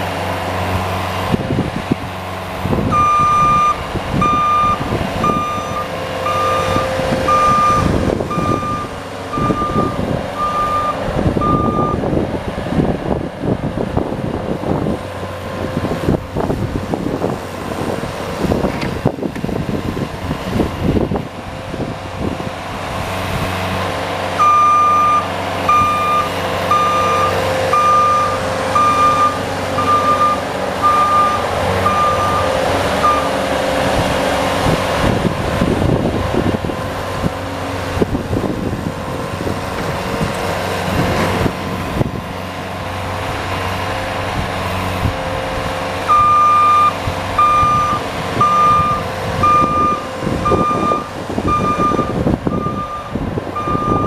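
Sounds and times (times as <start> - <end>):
vehicle engine running: 0.0 - 54.0
reversing alarm beeping: 2.9 - 12.0, 24.4 - 33.3, 46.1 - 54.0.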